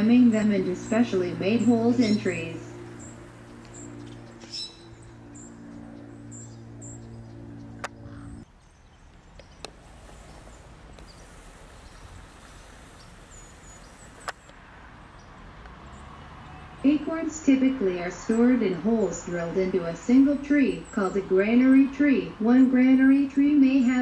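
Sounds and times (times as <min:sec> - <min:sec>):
low steady hum: 0:00.0 - 0:08.5
high-pitched bird chirps: 0:00.8 - 0:08.4
sharp clicks: 0:07.8 - 0:08.0, 0:14.1 - 0:14.6.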